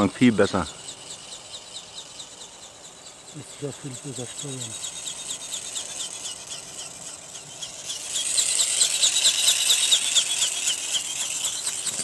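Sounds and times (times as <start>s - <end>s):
small electric motor whirring: 0.8s - 12.0s
rapid mechanical ticking: 3.6s - 12.0s.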